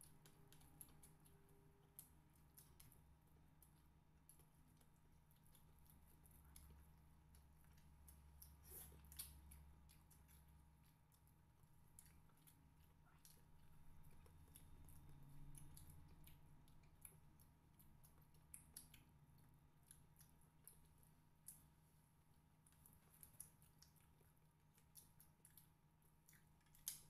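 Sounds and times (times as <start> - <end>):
faint chewing: 0.0 - 27.0
small mouth clicks: 3.6 - 11.3.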